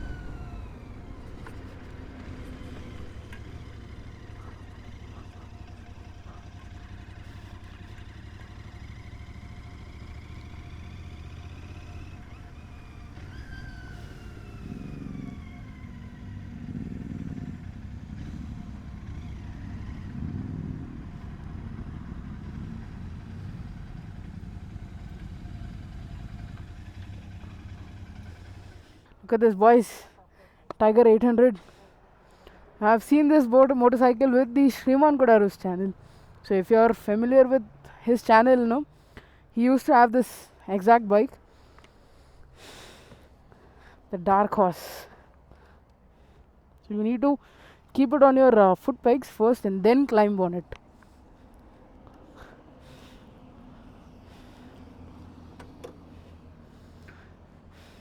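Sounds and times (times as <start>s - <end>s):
wind rumble: 0.0s - 6.2s, 10.8s - 26.8s
motorcycle engine: 0.0s - 29.2s, 33.5s - 39.5s, 50.0s - 58.0s.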